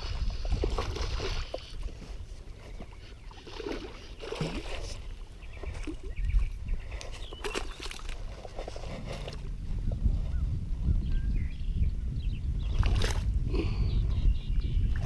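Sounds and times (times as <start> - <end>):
water splashing and sloshing: 0.0 - 9.7, 12.6 - 13.4
wind rumbling on microphone: 0.0 - 15.0.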